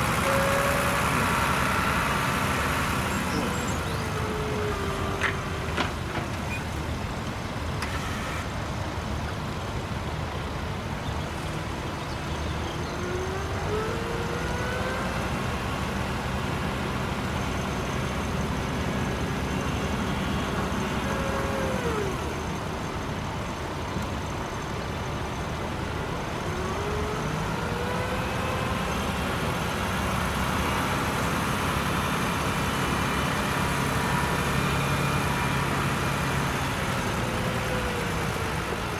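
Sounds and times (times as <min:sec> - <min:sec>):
tractor engine revving: 0:00.0 - 0:06.4, 0:12.5 - 0:23.0, 0:25.6 - 0:38.9.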